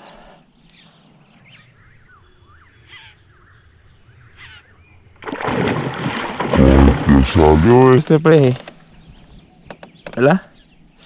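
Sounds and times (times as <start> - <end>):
faint bird chirps: 0.0 - 5.1.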